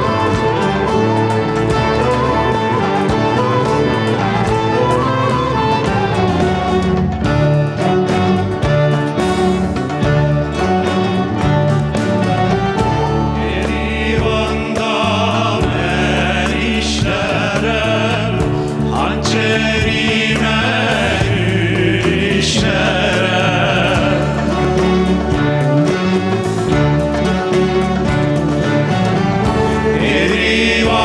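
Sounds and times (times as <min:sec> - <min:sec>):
string band playing: 0:00.0 - 0:31.0
men singing together: 0:13.2 - 0:25.6, 0:29.4 - 0:31.0.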